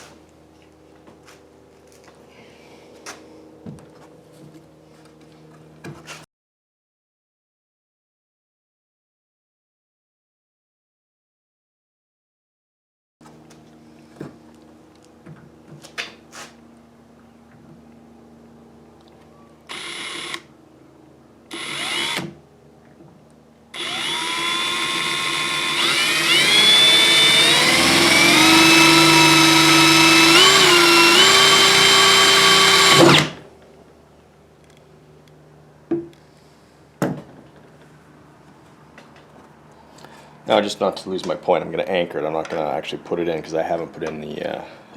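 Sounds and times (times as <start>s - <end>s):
power drill boring into plastic: 19.7s - 20.4s, 21.5s - 22.3s, 23.8s - 33.4s.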